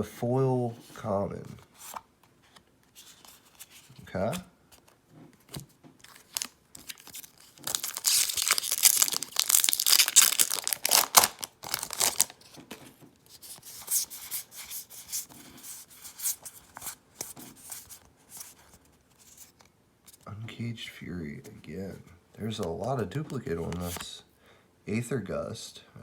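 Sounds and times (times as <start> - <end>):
cards rustling and clicking: 0.8 - 20.2, 22.8 - 24.2
foil wrapper tearing and crinkling: 6.1 - 12.4.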